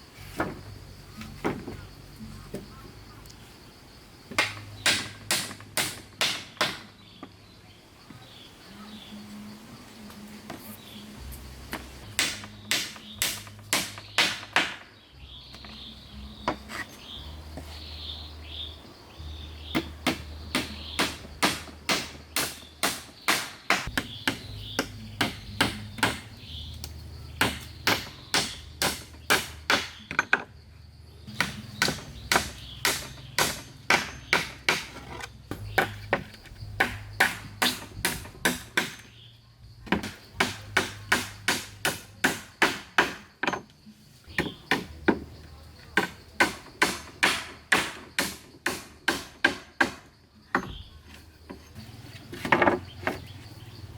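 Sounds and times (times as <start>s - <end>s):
hand tool striking wood: 4.3s - 7.0s, 11.7s - 14.9s, 19.7s - 30.5s, 31.3s - 39.2s, 39.9s - 43.7s, 44.3s - 45.3s, 46.0s - 51.6s.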